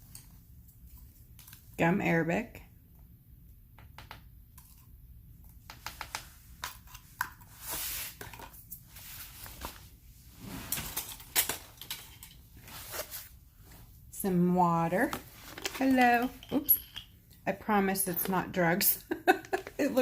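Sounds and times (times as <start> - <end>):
small clicks and taps on a tabletop: 3.8 - 4.3.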